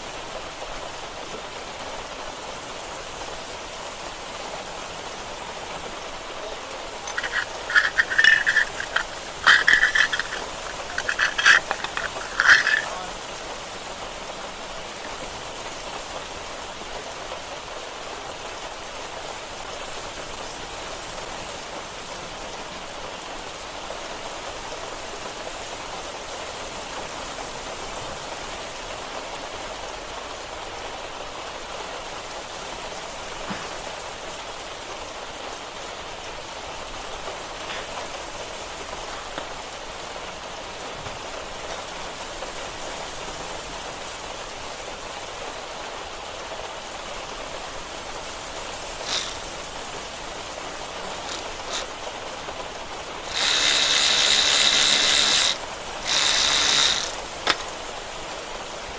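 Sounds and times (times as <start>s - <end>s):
steady hiss: 0.0s - 58.9s
ratchet wrench cranking: 7.1s - 13.1s, 49.0s - 49.5s, 51.1s - 51.9s, 53.2s - 57.7s.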